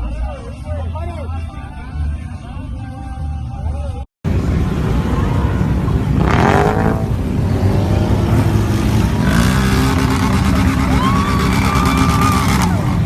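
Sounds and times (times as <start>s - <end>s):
off-road vehicle engine running: 4.3s - 13.0s.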